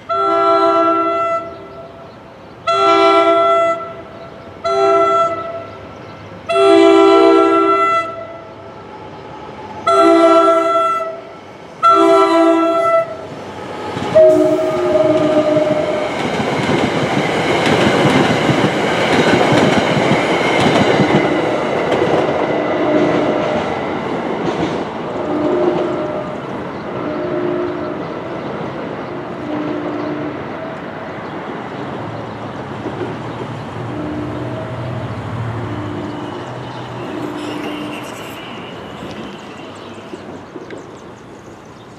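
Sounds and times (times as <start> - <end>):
train coaches clattering on rails: 11.6 - 41.9.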